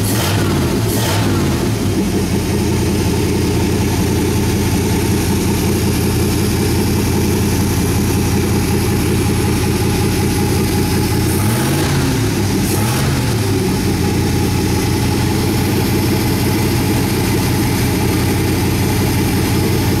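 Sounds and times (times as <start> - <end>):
car engine idling: 0.0 - 20.0
engine throttle blips: 0.0 - 20.0.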